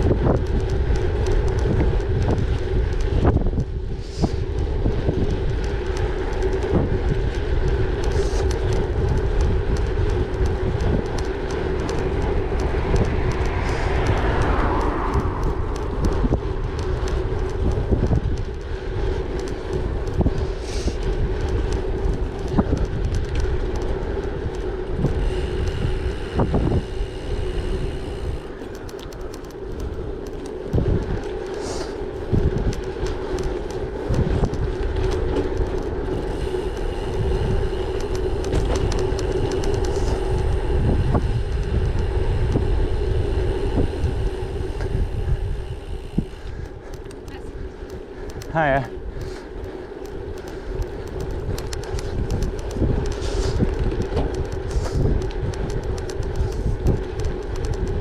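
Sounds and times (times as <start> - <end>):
bicycle tyre hum: 0.0 - 58.0
clicks and knocks from road: 0.0 - 58.0
wind buffeting microphone: 0.0 - 58.0.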